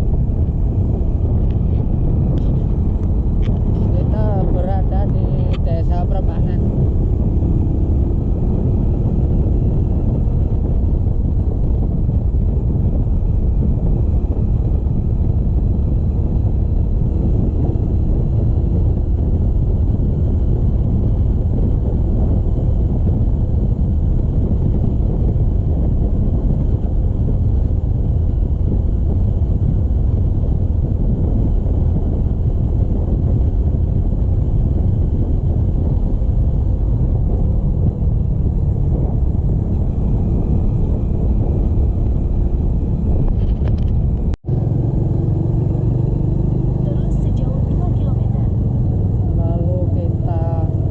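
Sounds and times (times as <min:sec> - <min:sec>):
motorcycle engine rumble: 0:00.0 - 0:50.9
wind noise on microphone: 0:00.0 - 0:50.9.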